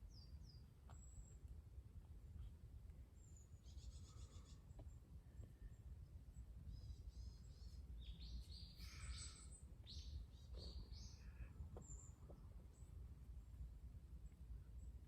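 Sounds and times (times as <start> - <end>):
faint low rumble: 0.0 - 15.0
bird chirping: 3.2 - 4.6, 6.7 - 12.8.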